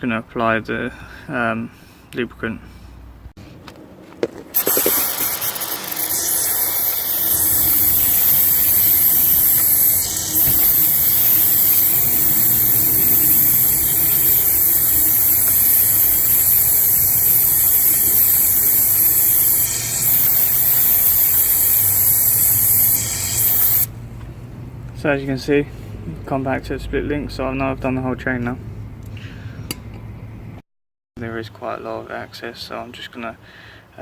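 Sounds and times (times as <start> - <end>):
aerosol spray hiss: 4.6 - 23.9.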